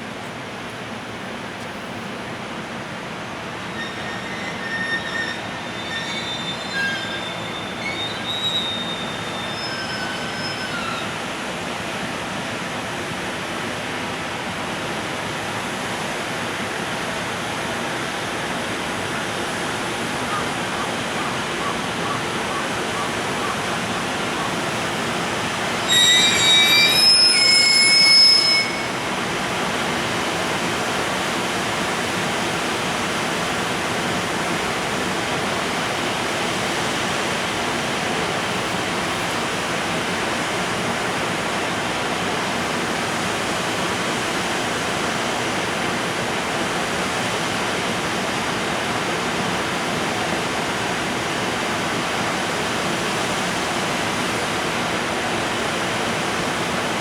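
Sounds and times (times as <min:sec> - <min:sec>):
freight train rumbling: 0:00.0 - 0:57.0
shrill high-pitched squeal: 0:03.6 - 0:11.2, 0:22.9 - 0:29.5.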